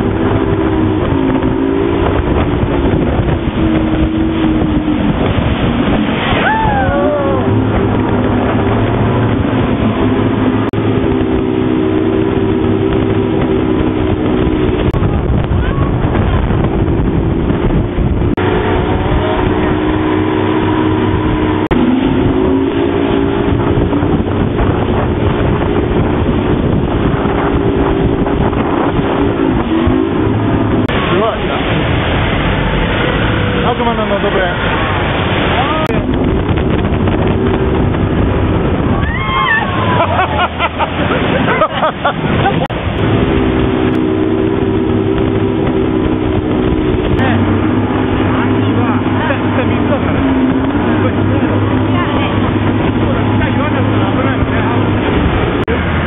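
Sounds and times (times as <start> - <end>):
motorboat engine running: 0.0 - 56.0
wind buffeting microphone: 0.0 - 56.0
voices: 47.1 - 56.0.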